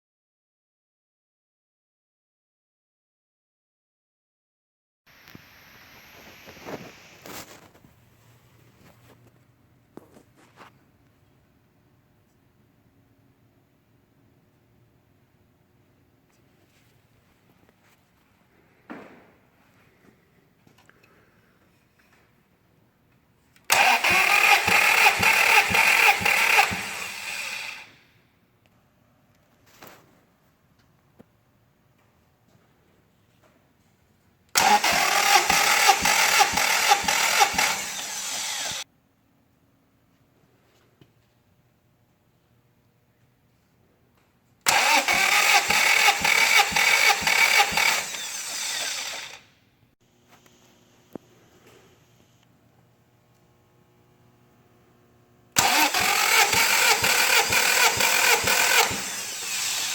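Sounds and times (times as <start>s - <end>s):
engine cranking by starter motor: 23.7s - 28.0s, 34.5s - 38.8s, 44.6s - 49.5s, 55.6s - 59.9s.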